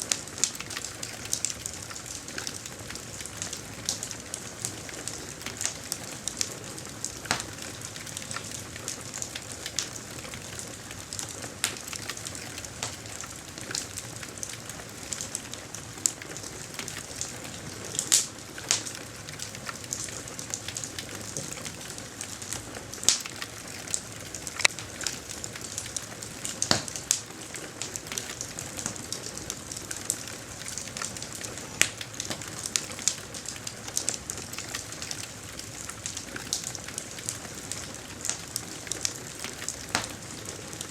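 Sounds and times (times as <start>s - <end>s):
campfire hissing and crackling: 0.0s - 40.9s
campfire pops: 7.2s - 7.7s, 24.5s - 25.1s, 26.5s - 28.2s.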